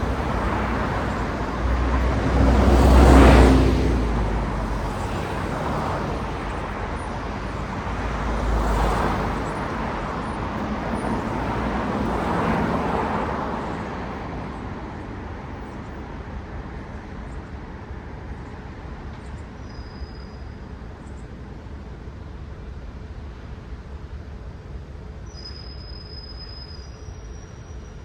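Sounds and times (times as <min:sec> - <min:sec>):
car passing close by: 0:00.0 - 0:14.8
distant traffic hum: 0:00.0 - 0:28.0.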